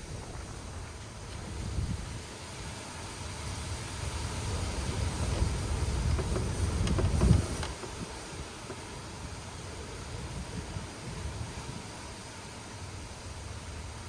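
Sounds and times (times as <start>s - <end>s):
wind gusting against microphone: 0.0s - 14.0s
faint knocks: 6.0s - 8.9s.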